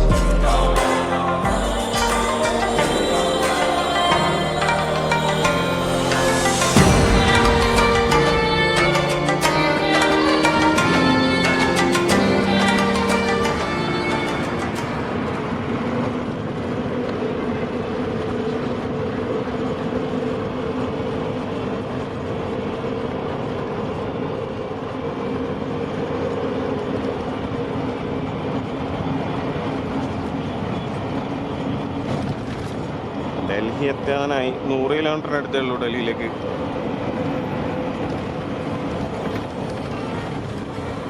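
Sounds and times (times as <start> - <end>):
lorry engine drone: 0.0 - 41.0
road noise inside cab: 9.5 - 41.0.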